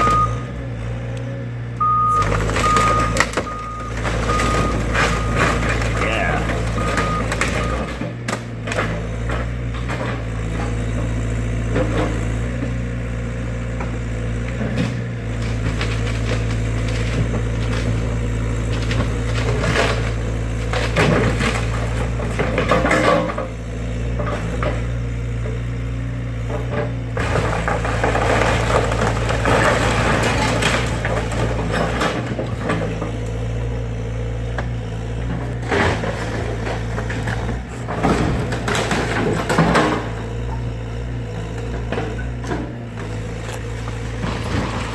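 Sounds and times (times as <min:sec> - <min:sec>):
excavator diesel engine running: 0:00.0 - 0:44.9
timber cracking and splintering: 0:14.8 - 0:23.2.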